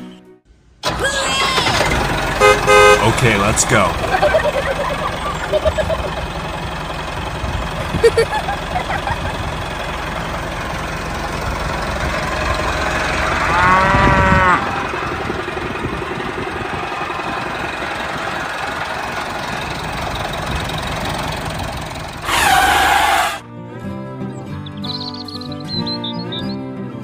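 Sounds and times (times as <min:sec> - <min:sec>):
tractor engine rumbling: 0:00.5 - 0:23.4
cow mooing: 0:12.8 - 0:15.0.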